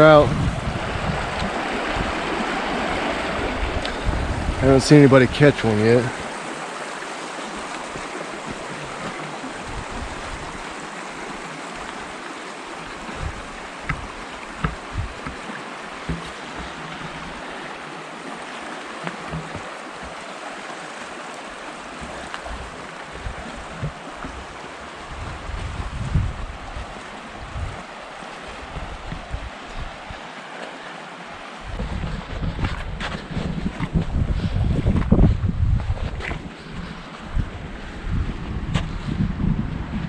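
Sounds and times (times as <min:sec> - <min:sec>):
river water rushing: 0:00.0 - 0:33.8
short low thumps: 0:13.2 - 0:15.4.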